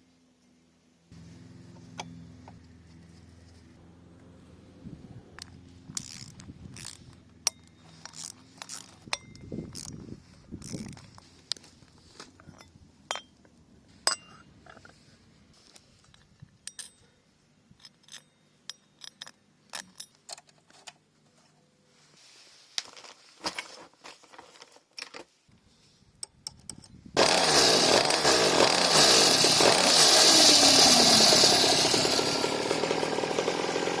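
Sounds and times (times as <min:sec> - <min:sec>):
small motorbike engine revving: 0:01.1 - 0:09.1, 0:27.2 - 0:34.0
metallic clicks of tools and chain: 0:05.4 - 0:10.0, 0:10.6 - 0:11.2, 0:16.0 - 0:20.9.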